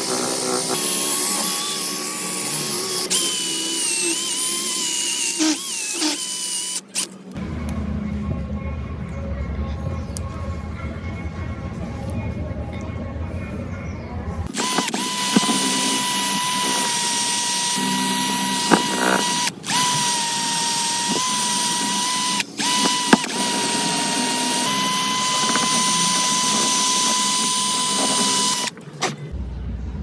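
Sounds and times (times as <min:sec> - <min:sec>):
power tool whining: 0:00.0 - 0:07.1, 0:14.5 - 0:29.3.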